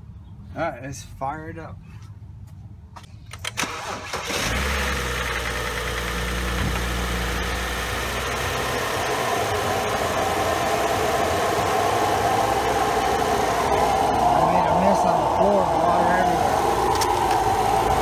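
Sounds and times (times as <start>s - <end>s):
car engine idling: 3.7s - 18.0s.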